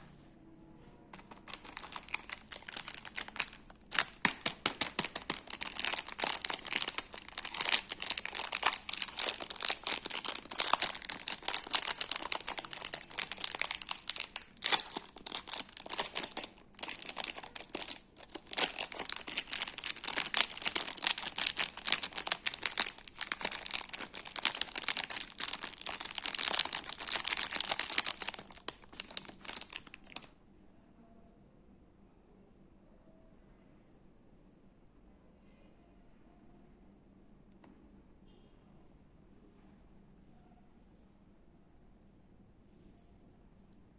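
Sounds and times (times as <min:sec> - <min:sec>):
sweet wrappers crinkling: 0:01.1 - 0:30.3.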